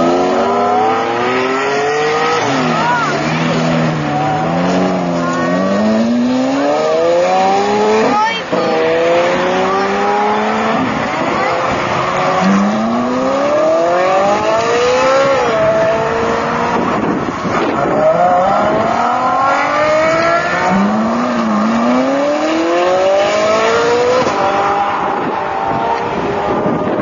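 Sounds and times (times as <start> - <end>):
sports car engines accelerating: 0.0 - 27.0.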